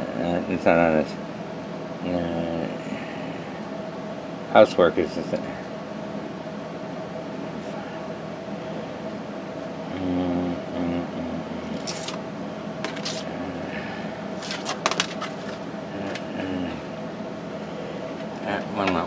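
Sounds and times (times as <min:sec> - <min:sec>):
steady hum: 0:14.2 - 0:17.6.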